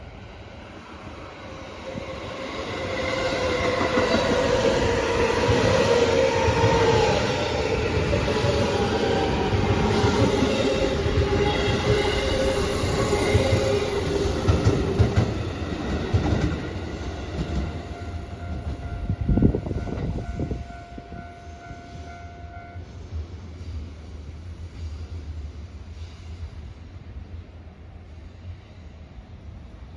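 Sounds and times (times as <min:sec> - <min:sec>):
train wheels clattering on rails: 0:02.8 - 0:20.4
crossing warning signal ringing: 0:17.4 - 0:22.8.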